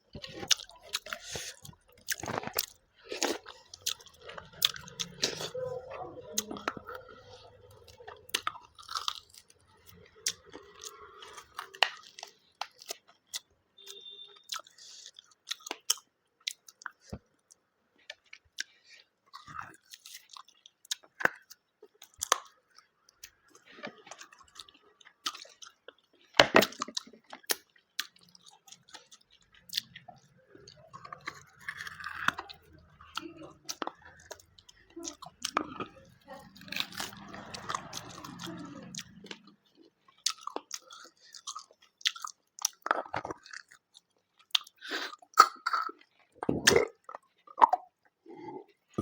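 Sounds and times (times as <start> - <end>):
person chewing food: 0.0 - 49.0
food crunches: 0.1 - 5.4.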